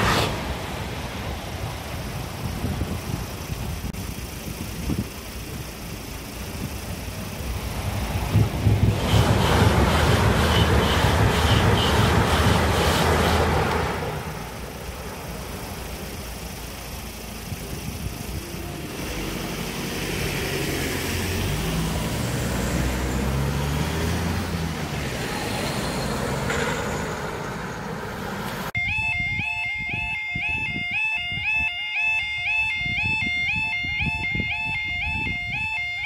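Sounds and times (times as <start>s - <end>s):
train rushing past: 0.0s - 1.9s, 7.6s - 15.5s
road vehicle engines: 0.0s - 36.0s.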